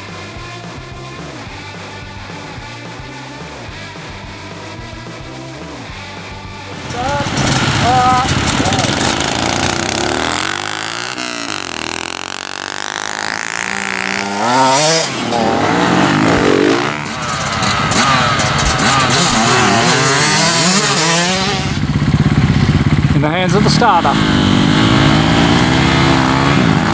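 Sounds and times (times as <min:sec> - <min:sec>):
motorcycle engines revving past: 0:00.0 - 0:26.9.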